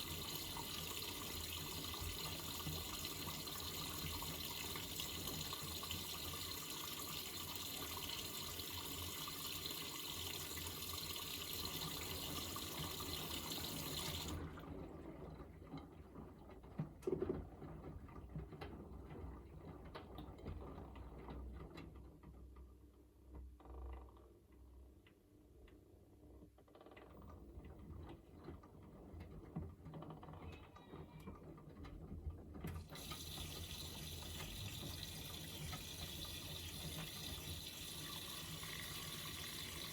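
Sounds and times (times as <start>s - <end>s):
water rushing into washing machine: 0.0s - 16.6s, 32.4s - 39.9s.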